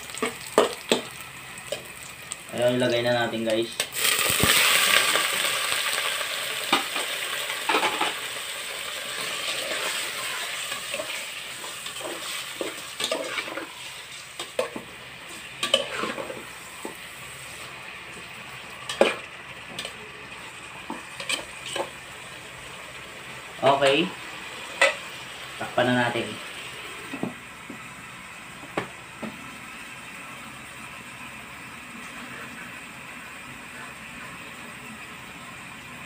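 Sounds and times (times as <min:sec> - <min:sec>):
chicken sizzling in hot oil: 0:00.0 - 0:36.0.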